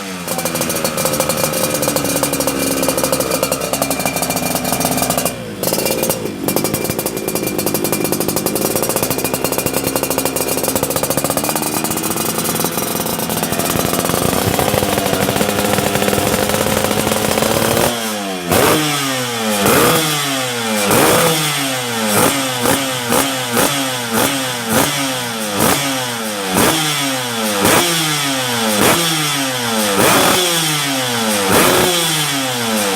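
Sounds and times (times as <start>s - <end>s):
two-stroke motorcycle engine revving: 0.0s - 32.9s.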